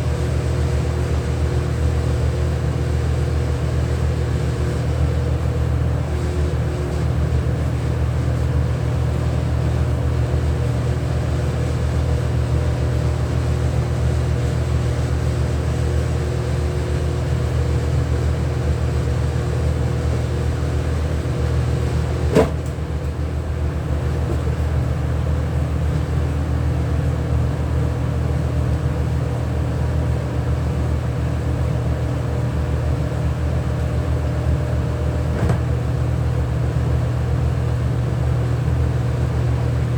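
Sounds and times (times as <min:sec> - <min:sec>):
sharp knock: 0:22.3 - 0:22.7.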